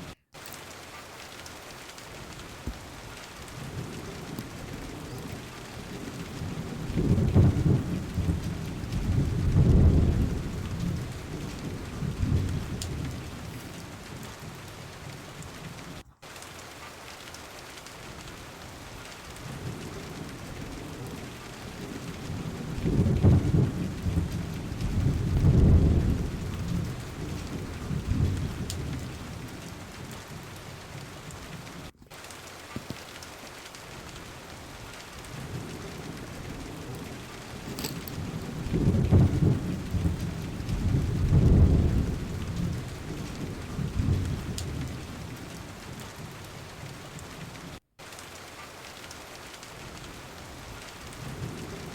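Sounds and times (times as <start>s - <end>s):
rain hissing: 0.0s - 51.9s
thunder rolling: 2.2s - 16.0s, 18.2s - 31.1s, 34.0s - 46.4s.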